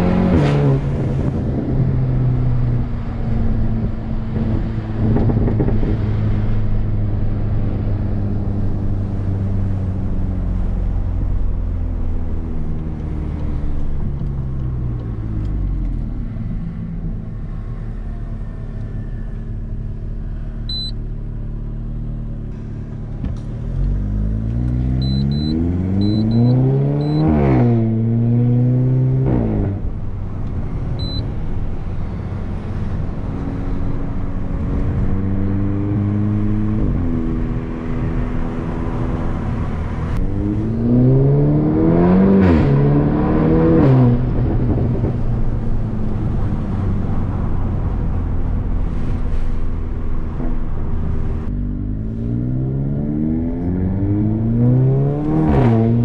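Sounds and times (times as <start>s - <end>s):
car engine revving from inside cabin: 23.7s - 29.8s, 51.8s - 56.0s.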